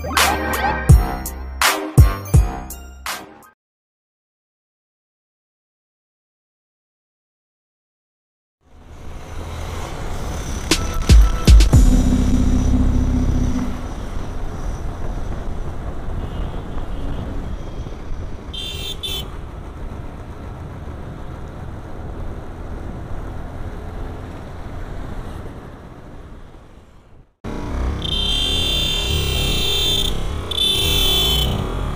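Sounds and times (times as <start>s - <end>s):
road traffic and wind rumble: 8.6s - 31.9s
car horn beeps: 28.0s - 31.6s.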